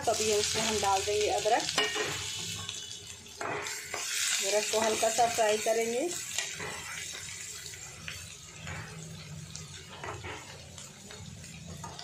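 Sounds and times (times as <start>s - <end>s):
garlic sizzling in oil: 0.0s - 12.0s
metal ladle scraping pan: 6.3s - 7.3s.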